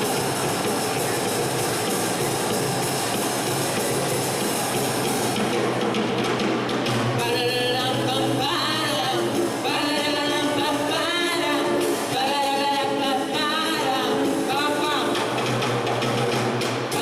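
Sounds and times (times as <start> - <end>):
person singing: 7.2 - 15.4.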